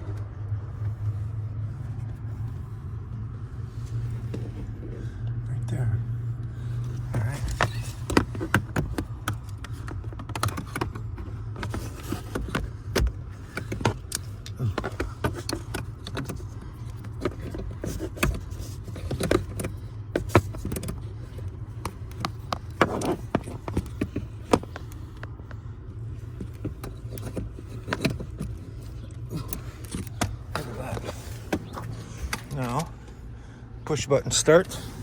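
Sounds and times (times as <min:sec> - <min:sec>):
steady low hum: 0:00.0 - 0:35.0
keys and equipment clicking: 0:06.4 - 0:33.2.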